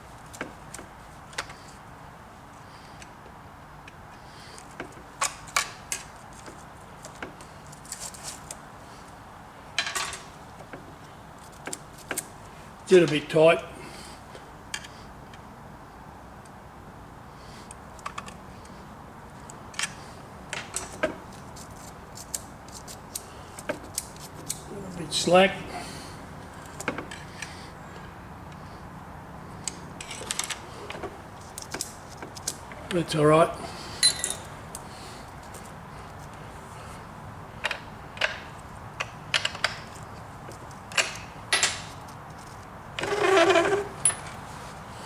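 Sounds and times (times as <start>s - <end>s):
light metallic clicks and clinks: 34.0s - 34.5s.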